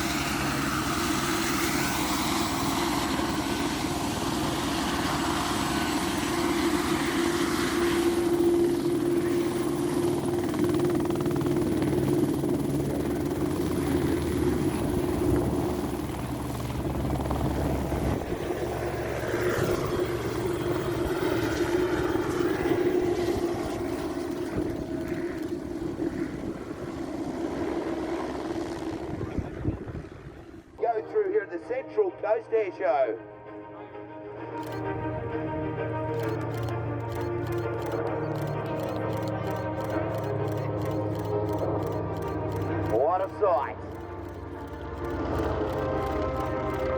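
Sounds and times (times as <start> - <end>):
helicopter turbine whine: 0.0 - 46.9
rotor blades chopping: 36.3 - 46.9.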